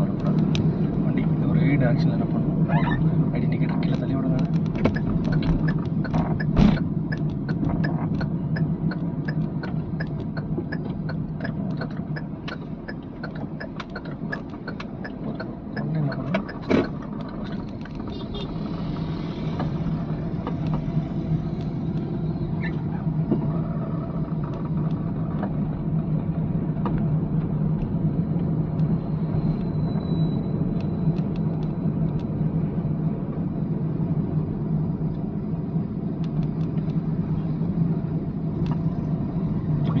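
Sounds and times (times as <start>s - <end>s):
car engine humming: 0.0s - 40.0s
fast regular ticking: 4.9s - 17.8s.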